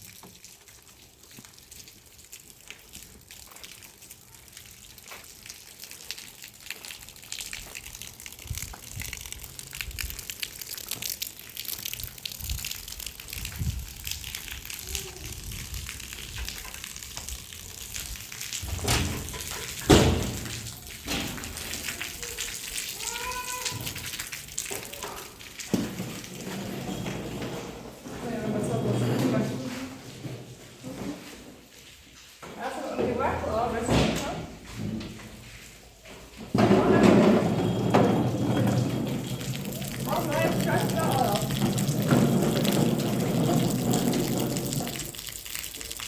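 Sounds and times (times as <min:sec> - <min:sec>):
water splashing and pouring: 0:00.0 - 0:46.0
clatter and knocks from handling: 0:36.5 - 0:40.1, 0:40.8 - 0:45.0.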